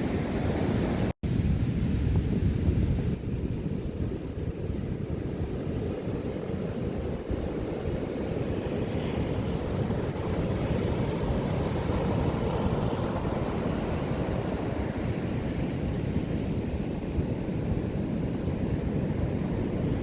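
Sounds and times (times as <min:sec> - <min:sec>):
wind buffeting microphone: 0:00.0 - 0:20.0
ocean surf breaking: 0:08.4 - 0:17.1.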